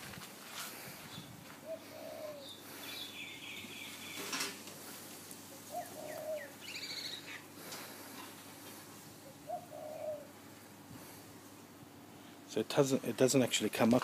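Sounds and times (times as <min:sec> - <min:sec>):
dove cooing: 0:01.6 - 0:11.2
small bird chirping: 0:02.1 - 0:04.3.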